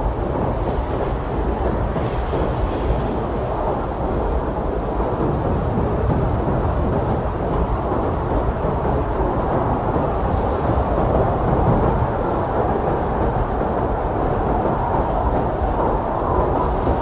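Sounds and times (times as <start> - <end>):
strong blizzard wind: 0.0 - 17.0.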